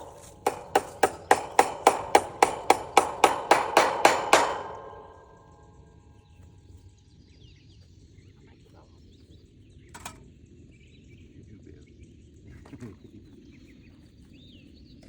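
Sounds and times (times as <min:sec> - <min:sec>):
hammer ringing on metal: 0:00.0 - 0:05.8
faint birdsong: 0:00.0 - 0:15.0.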